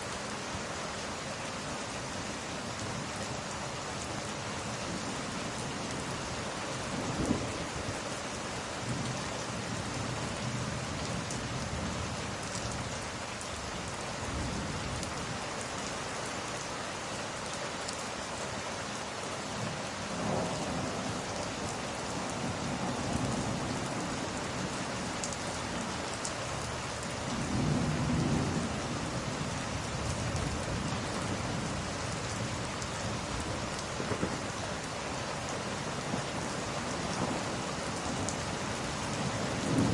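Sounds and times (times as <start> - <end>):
heavy rain: 0.0 - 39.9
low rolls of thunder: 20.1 - 21.2, 27.3 - 31.8, 33.3 - 34.4, 36.1 - 38.4, 39.1 - 39.9.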